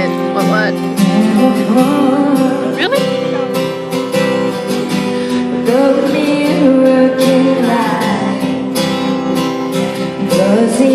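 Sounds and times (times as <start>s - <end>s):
acoustic guitar strumming: 0.0s - 10.9s
person singing: 1.0s - 4.0s, 4.8s - 9.0s, 10.0s - 10.9s.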